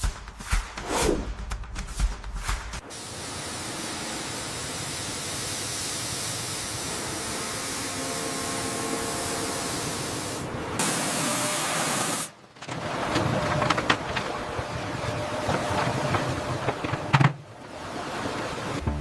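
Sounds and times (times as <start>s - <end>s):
hissing spray: 2.8s - 12.3s.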